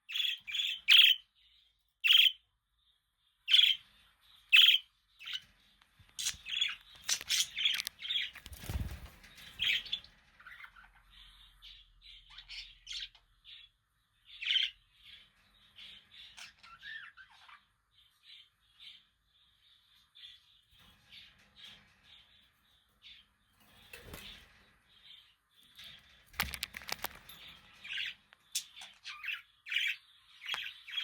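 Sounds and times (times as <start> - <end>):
budgerigars chirping and chattering: 0.0 - 1.3, 2.0 - 2.4, 3.5 - 19.1, 25.8 - 31.0.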